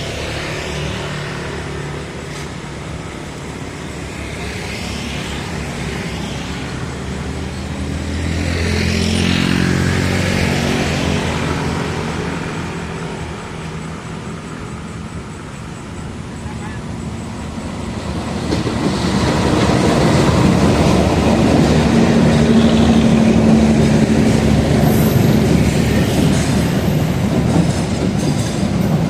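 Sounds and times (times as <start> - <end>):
passing vehicle engine: 4.1 - 15.3, 17.6 - 27.9.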